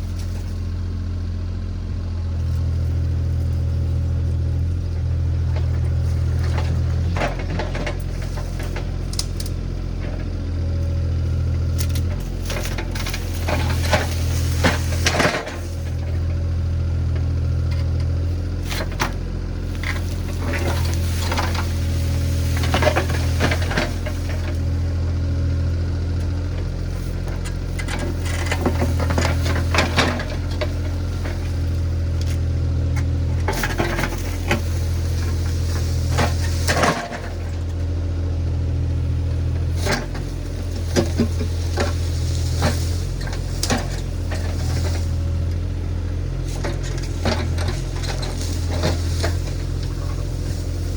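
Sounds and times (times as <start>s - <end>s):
diesel engine running: 0.0s - 50.9s
metallic clanks and rattles: 11.8s - 16.4s, 17.7s - 25.0s, 26.3s - 37.8s.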